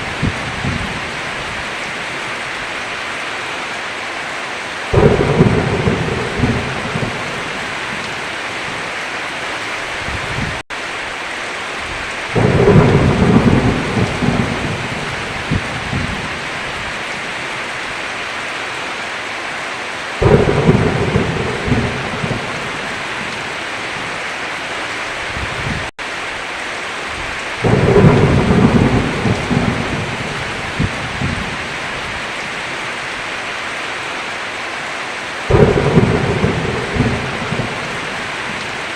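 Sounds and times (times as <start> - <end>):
thunder rumbling: 0.0 - 1.5, 4.9 - 8.8, 11.9 - 17.4, 20.2 - 24.2, 27.2 - 32.6, 35.5 - 38.9
heavy rain: 0.0 - 38.9.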